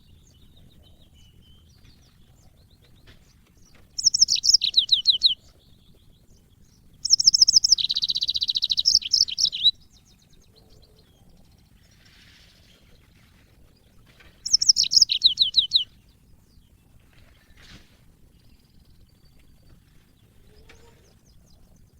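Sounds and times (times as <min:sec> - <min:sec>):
canary singing: 0:00.0 - 0:11.8, 0:13.9 - 0:17.4.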